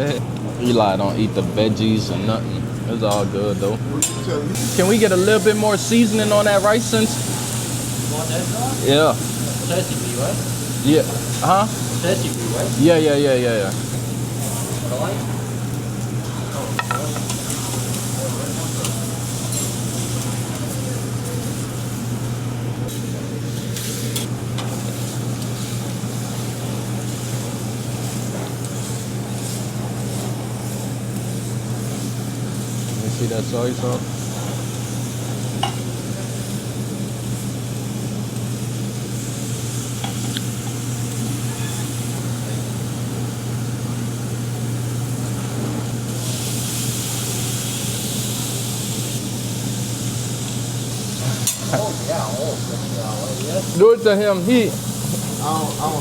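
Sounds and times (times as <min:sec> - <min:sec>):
steam hissing: 0:04.5 - 0:56.0
food sizzling on a griddle: 0:04.6 - 0:56.0
steady low hum: 0:47.2 - 0:56.0.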